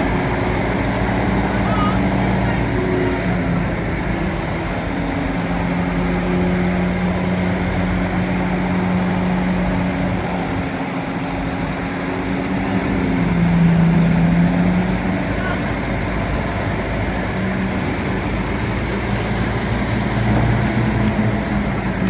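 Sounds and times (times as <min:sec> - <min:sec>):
bulldozer diesel engine droning: 0:00.0 - 0:22.0.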